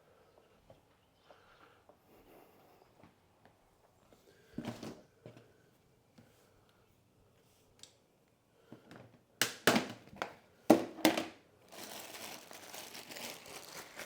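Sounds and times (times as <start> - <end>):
crinkling crunches: 11.6 - 14.0.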